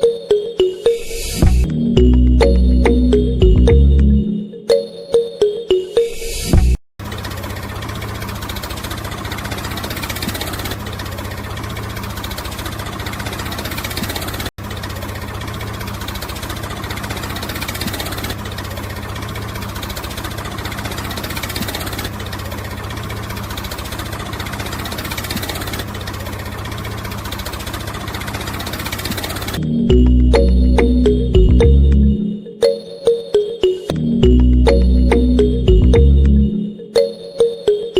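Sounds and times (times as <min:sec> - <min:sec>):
small motor pulsing: 0:27.0 - 0:29.6.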